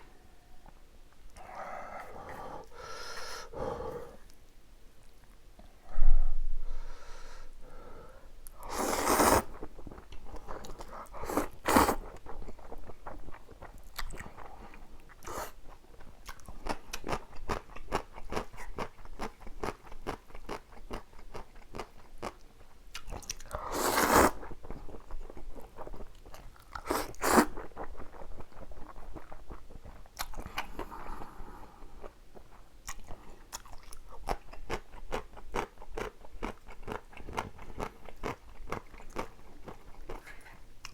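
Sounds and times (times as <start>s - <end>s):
noodle slurps: 8.6s - 9.7s, 10.7s - 12.2s, 23.6s - 24.5s, 26.8s - 27.7s
chewing with mouth clicks: 9.6s - 23.6s, 24.5s - 30.9s, 32.0s - 40.9s.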